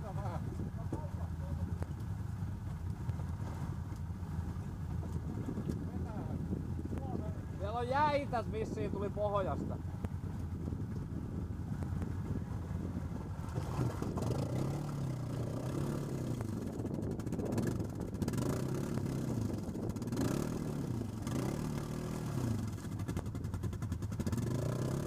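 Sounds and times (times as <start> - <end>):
quad bike engine revving: 11.7 - 25.0.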